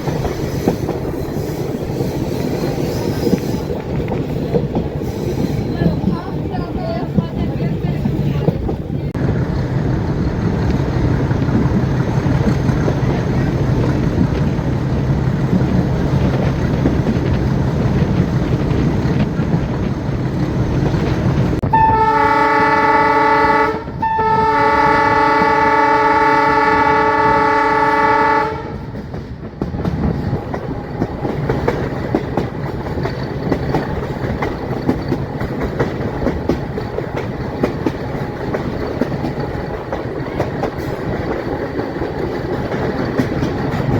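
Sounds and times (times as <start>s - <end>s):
wheels clicking over rail joints: 0.0s - 21.7s, 28.8s - 43.9s
diesel locomotive engine drone: 0.0s - 43.9s
rail noise: 0.0s - 43.9s
locomotive horn: 21.6s - 29.0s.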